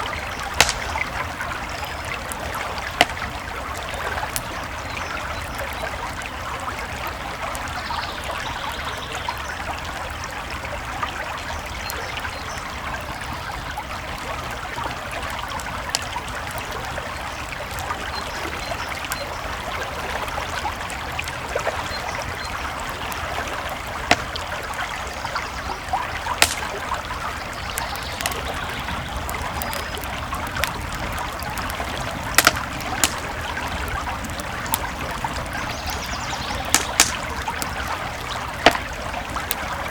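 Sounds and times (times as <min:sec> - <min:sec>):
campfire crackling: 0:00.0 - 0:39.9
creek water flowing: 0:00.0 - 0:39.9
sharp fire pops: 0:00.2 - 0:03.7, 0:22.9 - 0:24.7, 0:26.2 - 0:39.7.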